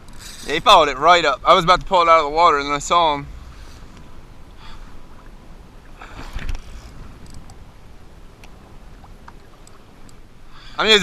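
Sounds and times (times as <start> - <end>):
wind and water rumble: 0.0 - 11.0
faint clicks: 6.3 - 7.6, 8.4 - 10.2.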